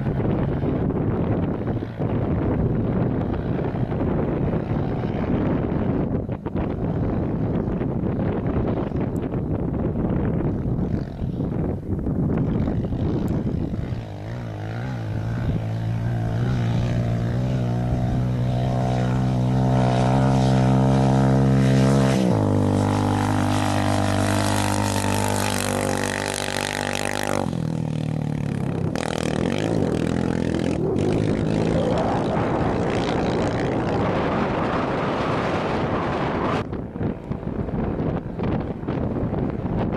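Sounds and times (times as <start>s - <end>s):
wind noise on microphone: 0.0s - 39.9s
race car engine passing: 12.8s - 36.7s.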